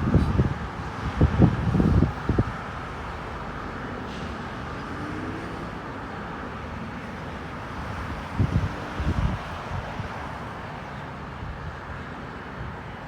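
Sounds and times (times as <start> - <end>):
wind buffeting microphone: 0.0 - 2.6, 7.9 - 10.4
steady outdoor hum: 0.0 - 13.0.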